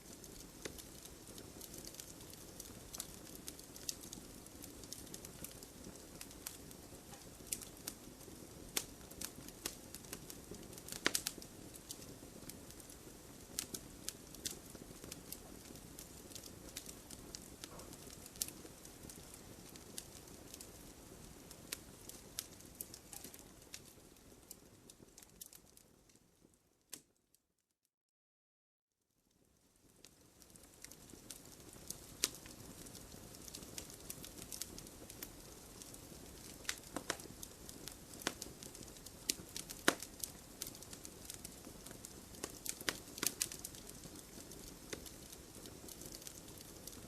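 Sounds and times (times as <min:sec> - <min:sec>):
hiss of flames: 0:00.0 - 0:25.3
wood fire crackling: 0:00.0 - 0:27.2, 0:29.3 - 0:47.0.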